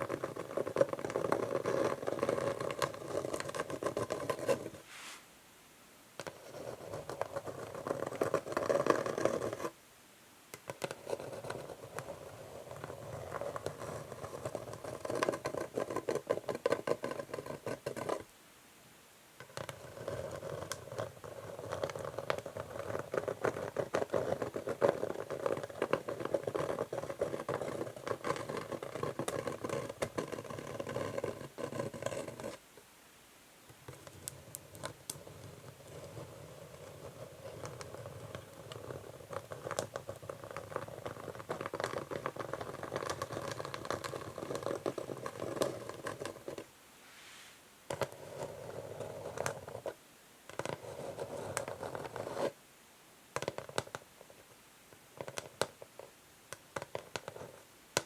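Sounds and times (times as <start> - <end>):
fingernails scratching wooden board: 0.0 - 4.8, 19.5 - 32.6.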